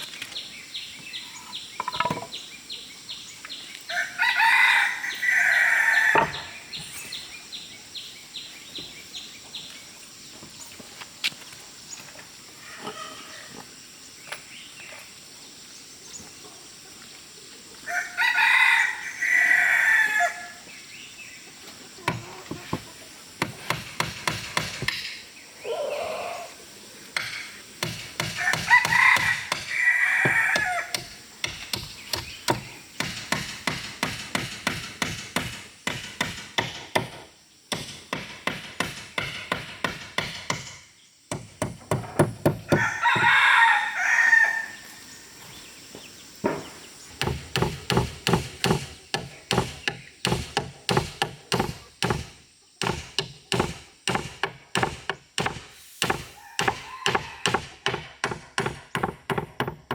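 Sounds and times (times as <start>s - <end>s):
rooster crowing: 3.9s - 6.6s, 17.9s - 20.6s, 28.3s - 31.1s, 42.7s - 44.9s, 56.4s - 57.8s.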